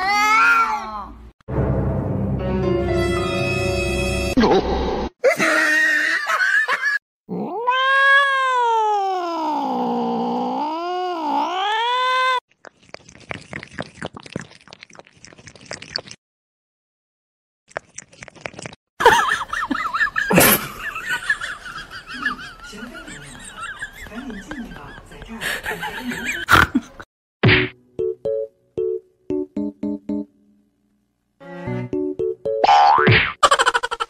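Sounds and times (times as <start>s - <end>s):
cat yowling: 7.3s - 12.4s.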